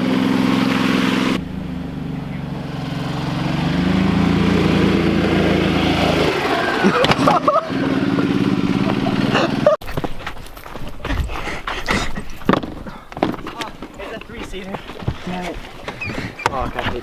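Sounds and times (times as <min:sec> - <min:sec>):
small engine running under throttle: 0:00.0 - 0:09.7.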